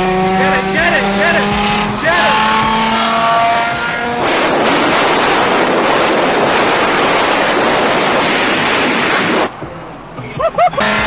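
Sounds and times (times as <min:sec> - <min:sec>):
wind buffeting microphone: 0:04.1 - 0:09.5.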